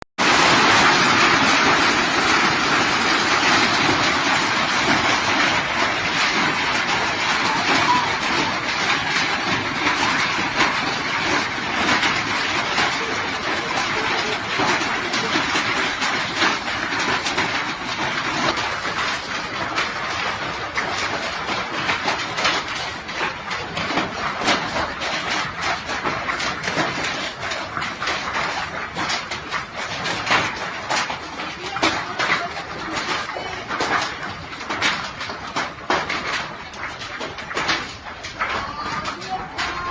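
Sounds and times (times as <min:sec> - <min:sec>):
hailstones and rain falling hard: 0:00.2 - 0:39.9.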